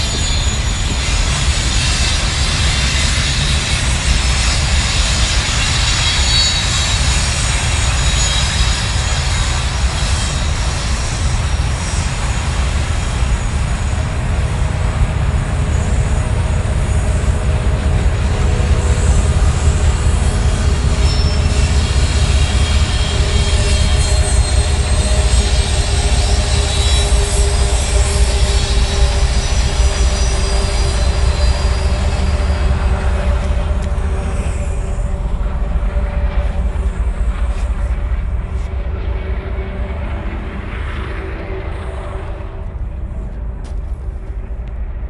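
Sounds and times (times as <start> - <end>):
high wheel squeals: 0.0 - 43.8
freight train rumbling past: 0.0 - 45.0.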